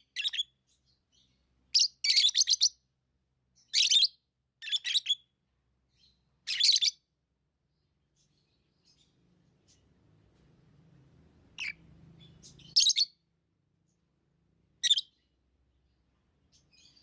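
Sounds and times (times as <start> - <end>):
lovebirds chirping shrilly: 0.0 - 2.8, 3.6 - 5.2, 6.0 - 7.0, 11.6 - 13.1.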